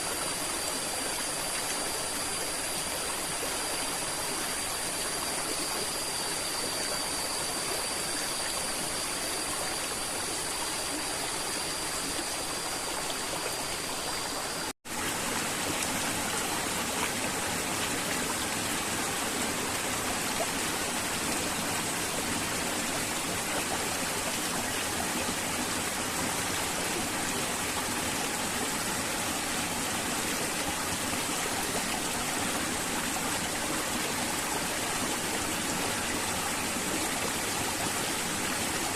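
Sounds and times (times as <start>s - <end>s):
river water flowing: 9.4s - 38.9s.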